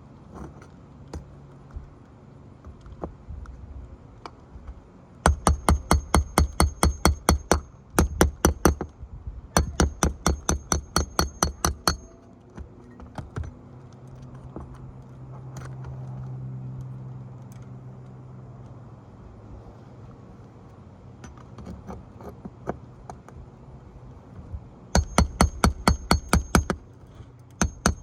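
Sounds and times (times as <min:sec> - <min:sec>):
hammer driving nails: 0:05.3 - 0:08.9, 0:09.6 - 0:12.1, 0:25.0 - 0:26.8, 0:27.6 - 0:28.0.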